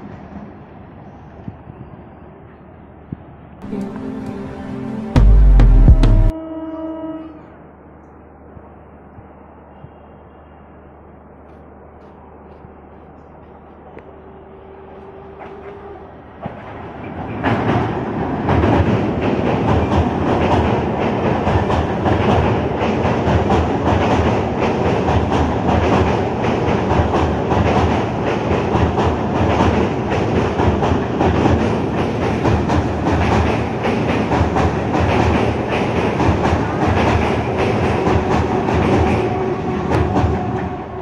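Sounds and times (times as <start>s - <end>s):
train wheels clattering on track: 15.2s - 41.0s.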